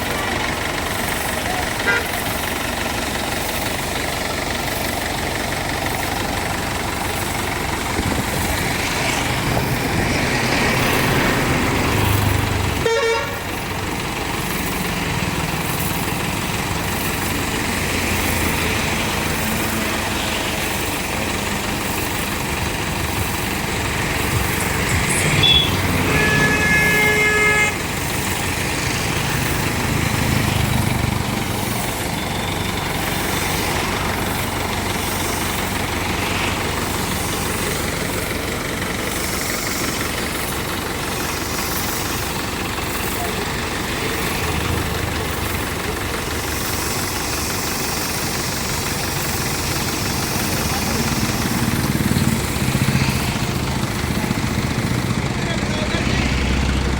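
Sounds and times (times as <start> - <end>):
tractor engine running: 0.0 - 56.9
vehicle horn: 1.8 - 2.3, 12.8 - 13.5, 25.0 - 27.9.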